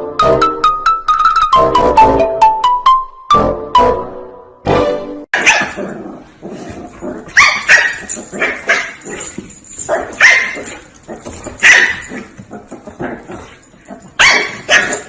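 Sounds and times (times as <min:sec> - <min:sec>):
dog barking: 0:05.4 - 0:05.8, 0:07.3 - 0:09.0, 0:09.9 - 0:10.8, 0:11.6 - 0:12.2, 0:14.2 - 0:15.0.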